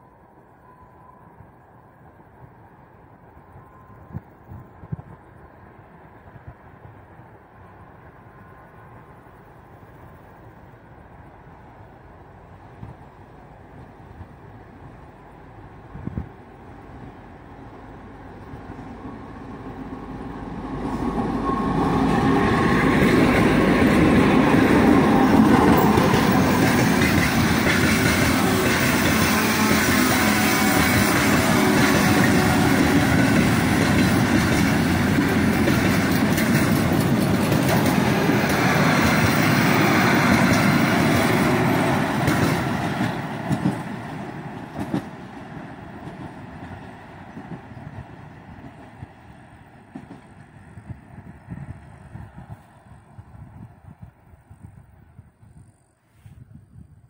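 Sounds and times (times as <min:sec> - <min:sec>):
diesel locomotive passing: 0:00.0 - 0:55.9
wagon wheels clicking over rail joints: 0:32.0 - 0:39.6.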